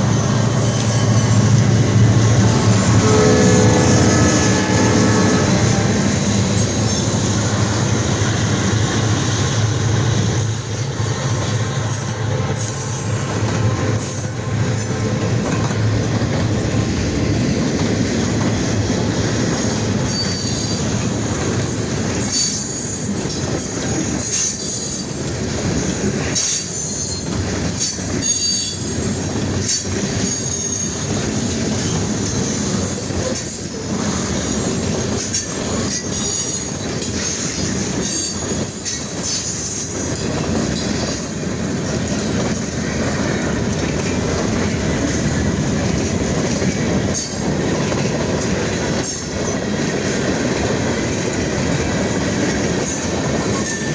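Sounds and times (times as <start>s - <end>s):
train wheels rumbling on rails: 0.0s - 53.9s
high-pitched wheel squeal: 0.1s - 15.1s.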